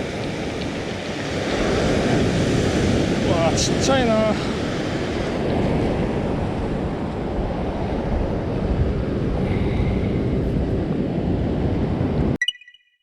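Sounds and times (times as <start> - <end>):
surf washing onto beach: 0.0 - 12.0
wind buffeting microphone: 0.0 - 12.4.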